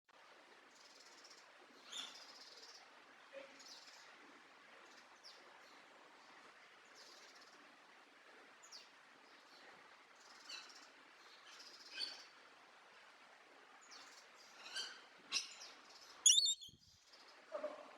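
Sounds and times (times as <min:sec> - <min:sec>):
low steady hiss: 0:00.2 - 0:17.9
songbird chirps: 0:13.8 - 0:17.6.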